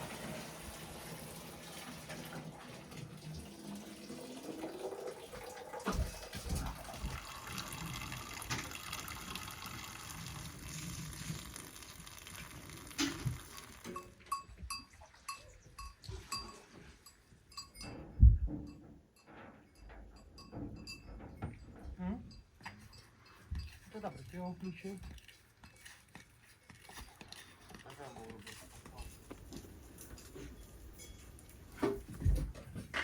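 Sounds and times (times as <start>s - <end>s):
water running: 0.0s - 14.3s
cowbell clanking: 11.4s - 26.0s, 27.0s - 31.7s.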